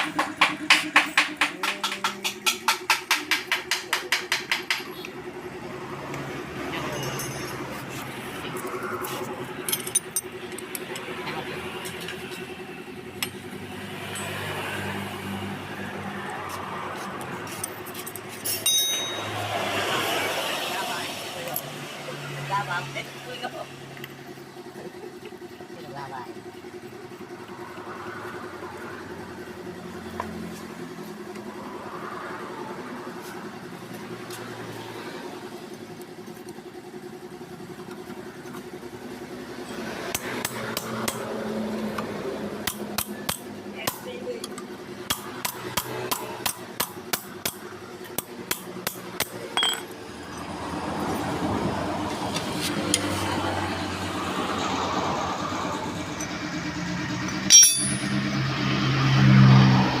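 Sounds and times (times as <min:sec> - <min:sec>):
hammer tapping on metal: 0:00.0 - 0:05.0, 0:57.5 - 0:58.2.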